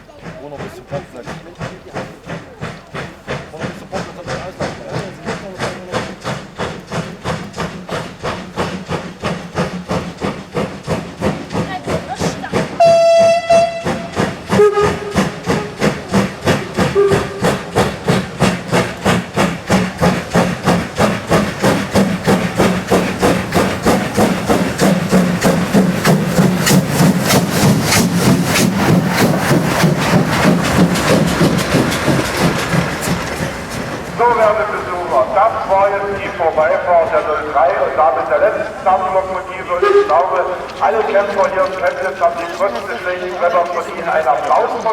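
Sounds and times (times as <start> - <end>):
steam locomotive exhaust beating: 0.0 - 44.9
steam whistle blast: 12.8 - 15.9, 16.8 - 17.5, 39.7 - 40.4.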